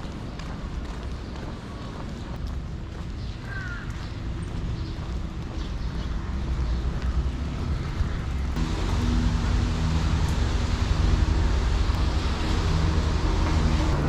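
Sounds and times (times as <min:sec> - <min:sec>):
street noise: 0:00.0 - 0:14.0
motor vehicle engine rumble: 0:06.3 - 0:14.0.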